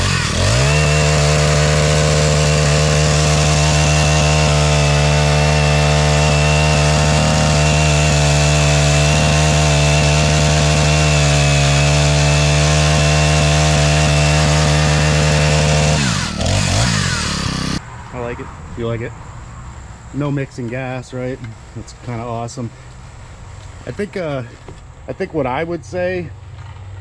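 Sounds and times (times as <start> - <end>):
chainsaw running at high revs: 0.0 - 17.8.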